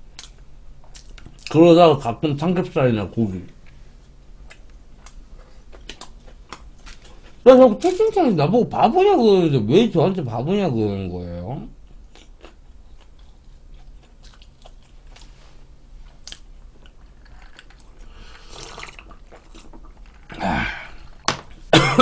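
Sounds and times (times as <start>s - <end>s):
chewing with wet mouth clicks: 0.2s - 1.6s, 4.4s - 7.3s, 11.9s - 15.3s, 16.1s - 20.2s
person gulping a drink: 16.3s - 21.3s.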